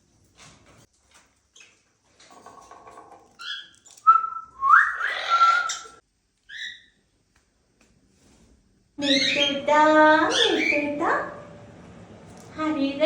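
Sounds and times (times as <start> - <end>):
parrot chirping and chattering: 3.2 - 4.1, 4.8 - 7.0, 9.0 - 10.9
parrot harsh whistling call: 3.4 - 6.9.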